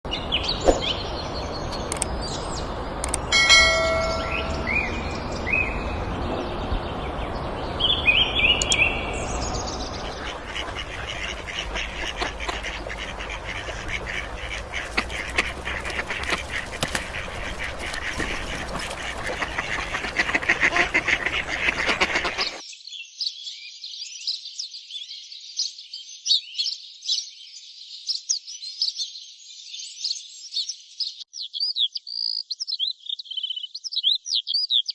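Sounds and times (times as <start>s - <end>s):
birds calling: 0.1s - 22.6s
steady background noise: 0.1s - 22.6s
high thin bird chirps: 8.4s - 9.2s.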